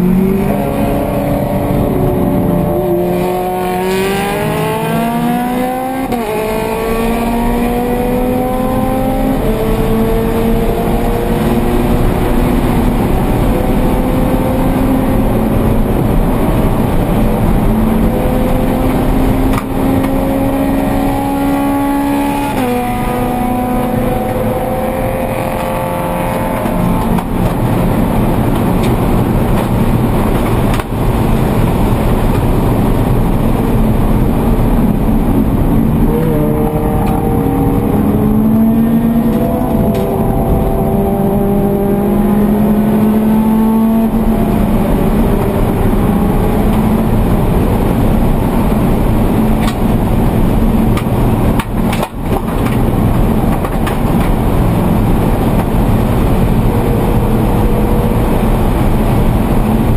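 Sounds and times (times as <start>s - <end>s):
race car engine revving: 0.0s - 59.9s
road and tyre noise: 0.0s - 59.9s.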